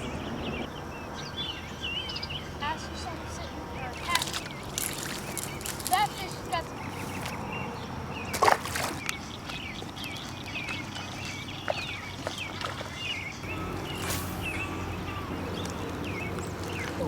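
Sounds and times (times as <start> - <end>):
birds chirping: 0.0 - 17.0
low steady hum: 13.4 - 17.0.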